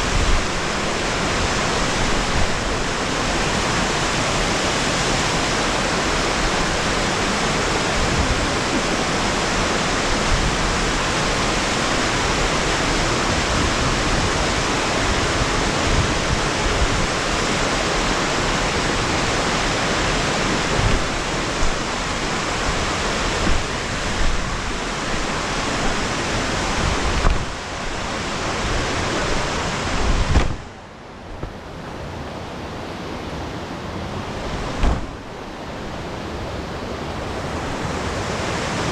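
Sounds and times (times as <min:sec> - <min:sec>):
waterfall rushing: 0:00.0 - 0:38.9
low thumps: 0:30.1 - 0:30.7, 0:34.7 - 0:35.3.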